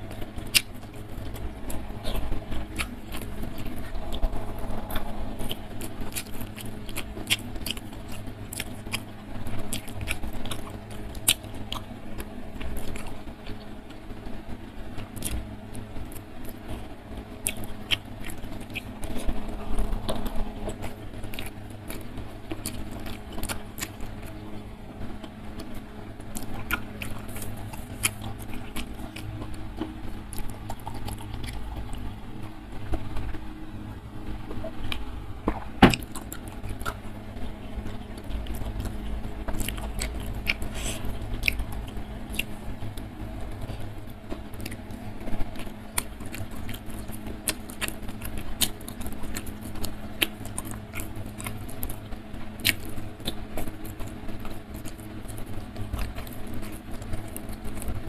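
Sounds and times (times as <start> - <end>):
person chewing: 0.0 - 13.8, 14.9 - 43.9, 44.5 - 58.0.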